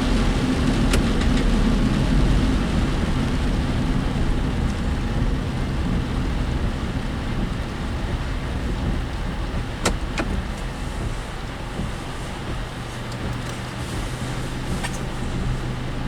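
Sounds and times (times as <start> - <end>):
vehicle road and engine rumble: 0.0 - 16.0
vehicle body rattling knocks: 7.3 - 15.6.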